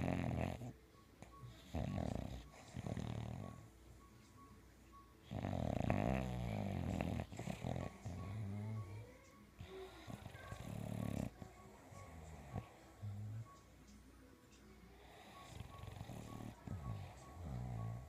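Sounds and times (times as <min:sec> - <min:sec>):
dog snoring: 0:00.0 - 0:03.7, 0:05.2 - 0:13.6, 0:15.0 - 0:18.0.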